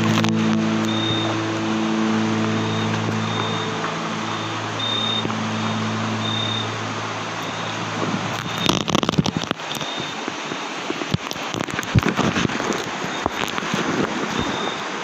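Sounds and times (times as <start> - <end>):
steady rain: 0.0 - 15.0
raindrops tapping close: 8.3 - 14.8.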